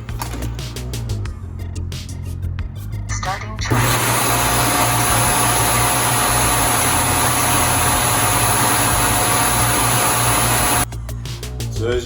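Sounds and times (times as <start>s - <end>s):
suction motor rushing air: 3.7s - 10.9s
thin motor whine: 3.7s - 10.9s.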